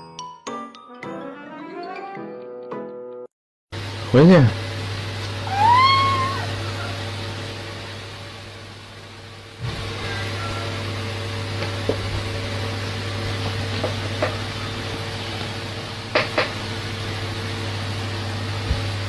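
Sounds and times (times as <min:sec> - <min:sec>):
low machine hum: 0:03.8 - 0:19.0.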